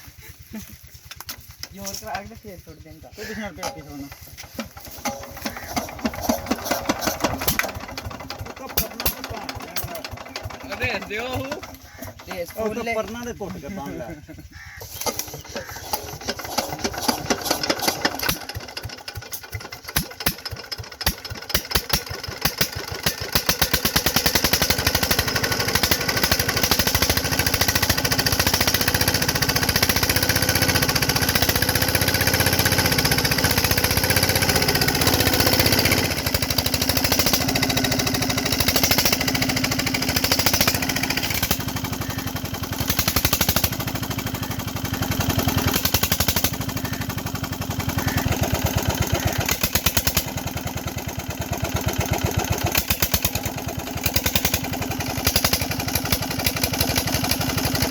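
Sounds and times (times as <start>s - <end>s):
diesel engine starting and running: 0.0s - 57.9s.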